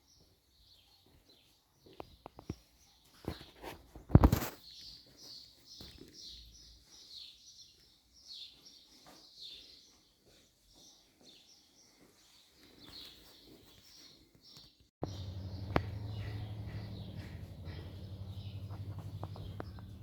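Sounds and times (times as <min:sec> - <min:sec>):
faint high bird chirps: 0:12.9 - 0:20.0.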